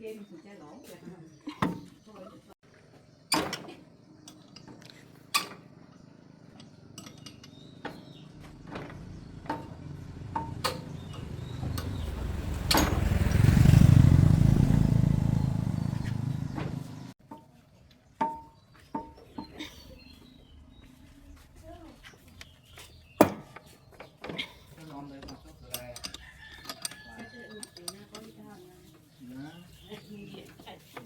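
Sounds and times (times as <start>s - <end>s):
vehicle engine rumbling: 5.6s - 17.2s
sharp clicks and knocks: 6.6s - 13.5s.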